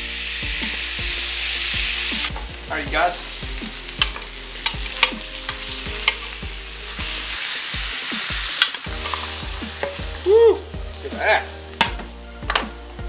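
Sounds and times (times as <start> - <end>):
fish sizzling in a grill pan: 0.0 - 13.0
metal tongs clicking on pan: 4.0 - 6.4, 8.5 - 10.0, 11.8 - 12.6.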